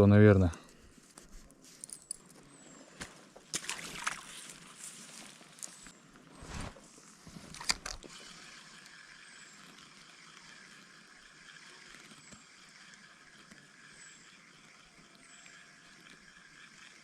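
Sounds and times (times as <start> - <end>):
stream running: 3.0 - 5.9, 6.5 - 17.0.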